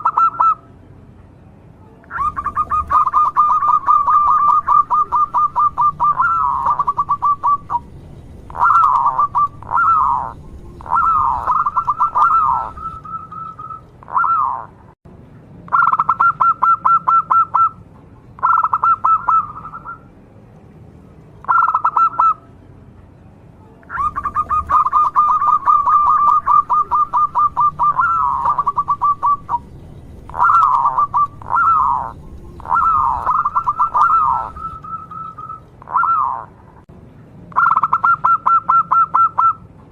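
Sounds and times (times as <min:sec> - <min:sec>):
dove cooing: 0:00.0 - 0:00.6, 0:02.1 - 0:14.7, 0:18.4 - 0:20.0, 0:21.5 - 0:22.4, 0:23.9 - 0:36.6, 0:37.6 - 0:39.6.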